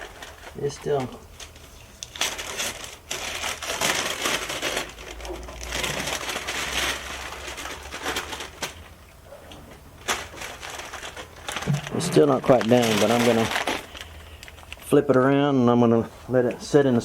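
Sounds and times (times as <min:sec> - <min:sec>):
masking tape peeling and crumpling: 0:00.0 - 0:08.9, 0:10.0 - 0:15.1.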